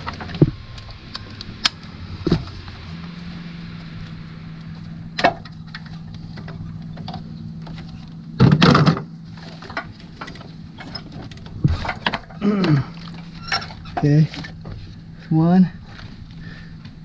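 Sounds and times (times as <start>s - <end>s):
sharp clicks and knocks: 0.0s - 2.8s, 4.0s - 14.8s
steady low hum: 0.0s - 17.0s
metal tools clattering: 5.5s - 14.7s.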